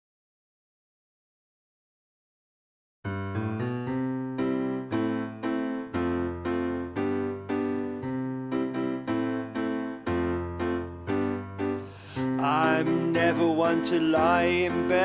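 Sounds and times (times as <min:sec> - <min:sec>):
piano chords: 0:03.1 - 0:15.0.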